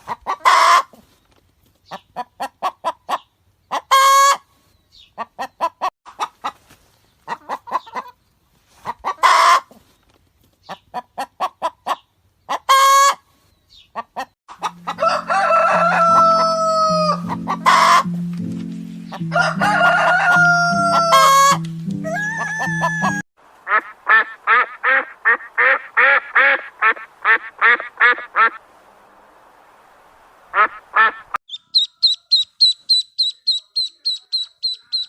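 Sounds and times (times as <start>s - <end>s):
chicken squawks: 0.0s - 1.0s, 1.9s - 4.4s, 8.8s - 9.7s, 10.7s - 13.2s, 15.4s - 18.1s, 19.9s - 28.6s, 30.5s - 35.0s
chickens clucking: 0.0s - 1.1s, 1.8s - 9.8s, 10.6s - 28.6s, 30.6s - 35.0s
background music: 14.6s - 23.2s
rooster crowing: 14.7s - 18.1s, 19.2s - 23.2s.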